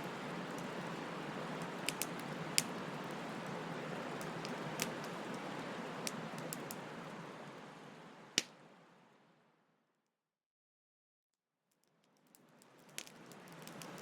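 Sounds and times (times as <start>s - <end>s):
wood fire crackling: 0.0s - 8.6s, 12.2s - 14.0s.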